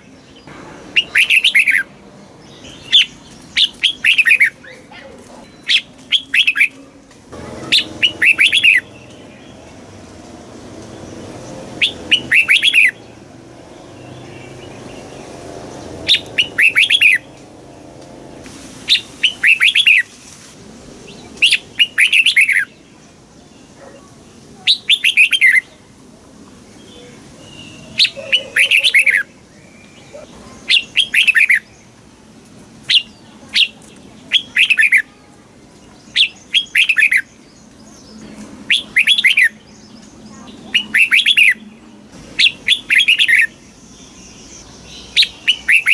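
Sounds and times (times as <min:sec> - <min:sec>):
bird singing falling notes: 0:05.4 - 0:13.0.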